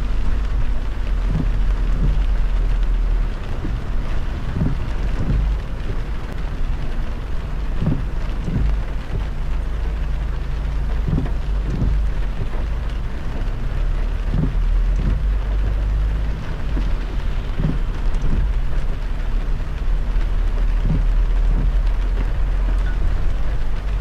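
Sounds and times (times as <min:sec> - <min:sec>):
heavy rain on a car: 0:00.0 - 0:24.0
low road rumble: 0:00.0 - 0:24.0
soft thumps: 0:04.5 - 0:06.0, 0:07.8 - 0:09.3, 0:11.0 - 0:12.7, 0:14.2 - 0:15.5.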